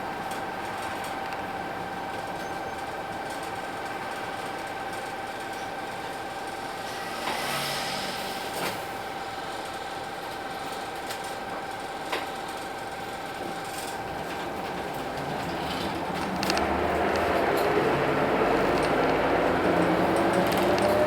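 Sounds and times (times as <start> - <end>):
diesel bus engine idling: 0.0 - 21.0
high-pitched whine: 6.3 - 9.7.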